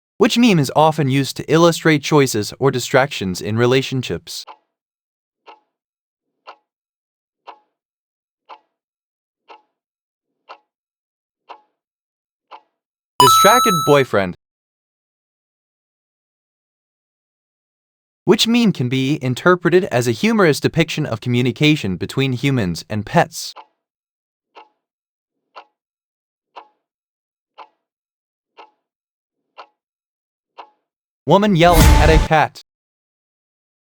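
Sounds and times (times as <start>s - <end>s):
countdown timer ticking: 13.2s - 14.3s.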